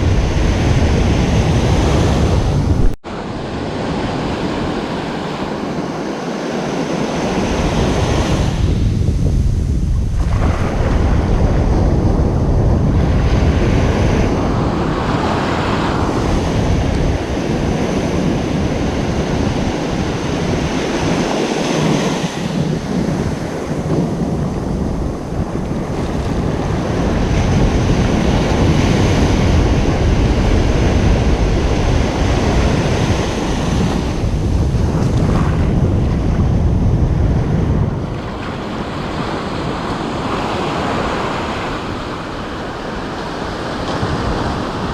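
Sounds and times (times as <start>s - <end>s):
ocean surf breaking: 0.0s - 44.9s
wind on microphone: 0.0s - 44.9s.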